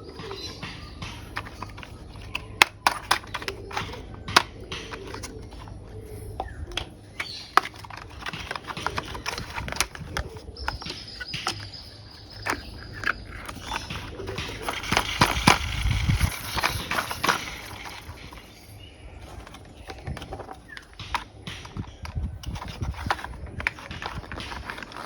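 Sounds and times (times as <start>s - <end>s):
plastic toy parts clicking: 0.0s - 25.0s.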